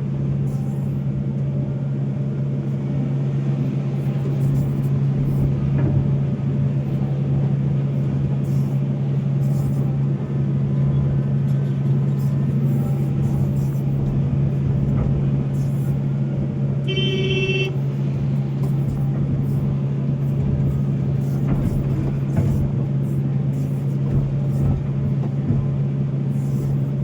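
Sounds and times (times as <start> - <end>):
excavator diesel engine running: 0.0 - 27.0
short pitched beep: 16.9 - 17.8.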